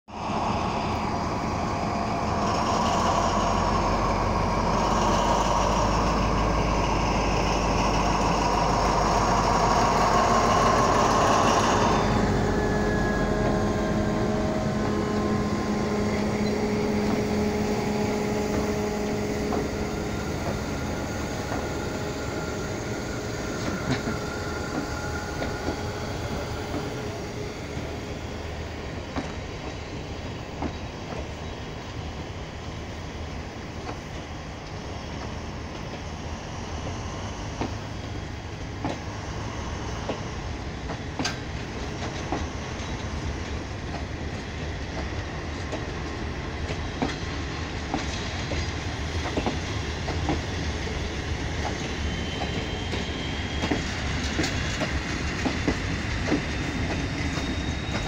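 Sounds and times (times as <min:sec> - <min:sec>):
diesel locomotive engine whine and rumble: 0:00.1 - 0:58.0
train wheels clicking over rail joints: 0:14.7 - 0:27.9, 0:28.9 - 0:31.5, 0:38.6 - 0:58.0.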